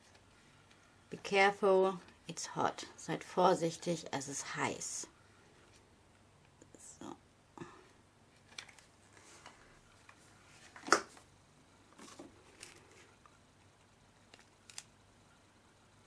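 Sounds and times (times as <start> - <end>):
small clicks and rustles: 8.3 - 11.3, 11.9 - 14.9.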